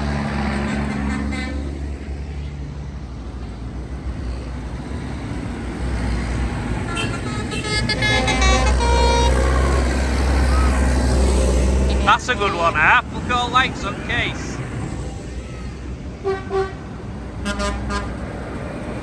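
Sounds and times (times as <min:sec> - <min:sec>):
tractor engines rumbling: 0:00.0 - 0:19.0
horn toots: 0:00.4 - 0:01.8, 0:06.8 - 0:14.6, 0:17.4 - 0:18.2.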